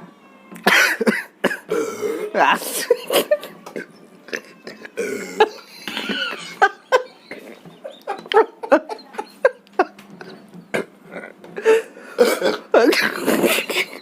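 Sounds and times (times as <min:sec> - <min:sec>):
people burping: 0:00.6 - 0:07.6, 0:10.7 - 0:14.0
people coughing: 0:00.6 - 0:10.0, 0:10.7 - 0:14.0.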